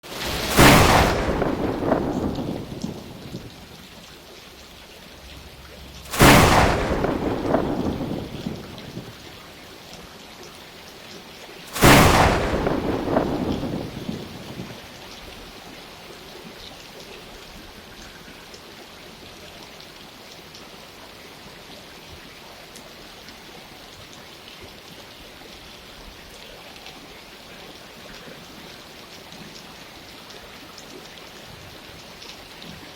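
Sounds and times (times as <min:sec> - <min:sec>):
steady rain: 0:00.0 - 0:32.9
thunderclap rumbling: 0:00.1 - 0:04.0, 0:05.2 - 0:09.4, 0:11.7 - 0:14.9.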